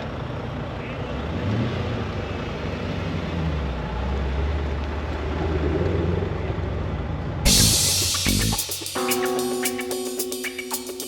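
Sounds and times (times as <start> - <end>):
vehicle engine droning: 0.0 - 8.6.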